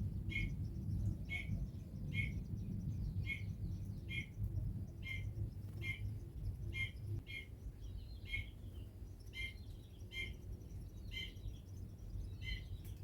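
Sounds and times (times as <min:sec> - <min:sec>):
steady low rumble: 0:00.0 - 0:08.2
small bird chirping: 0:00.0 - 0:13.0.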